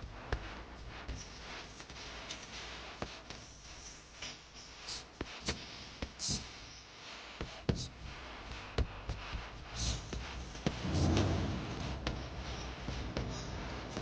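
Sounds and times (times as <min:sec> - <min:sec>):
low rumble: 0:10.7 - 0:14.0.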